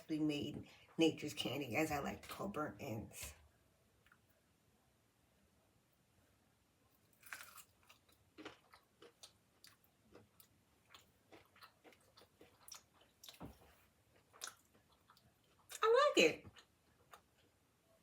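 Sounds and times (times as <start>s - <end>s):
person biting into meat: 7.2s - 7.7s
chewing mouth sounds: 7.2s - 15.8s.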